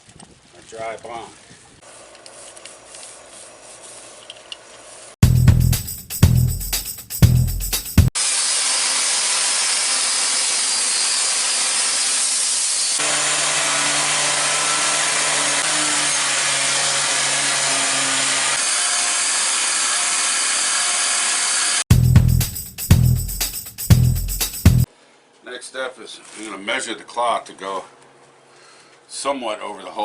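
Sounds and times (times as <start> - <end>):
background music with a beat: 5.2 - 8.2, 21.9 - 24.9
power sander grinding wood: 8.2 - 21.8.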